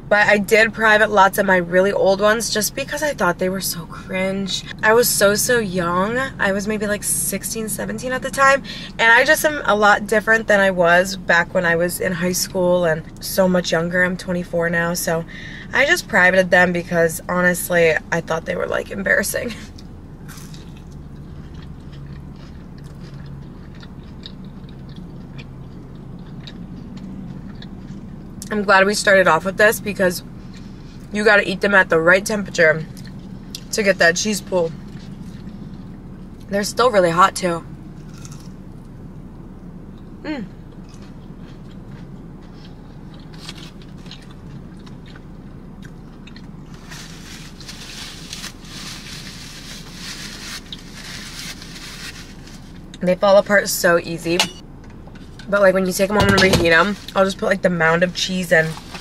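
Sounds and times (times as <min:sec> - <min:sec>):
steady low hum: 0:00.0 - 0:59.0
chewing with wet mouth clicks: 0:19.7 - 0:28.5, 0:32.9 - 0:33.7, 0:34.8 - 0:36.5, 0:40.7 - 0:46.8
paper napkin crinkling: 0:46.7 - 0:52.9.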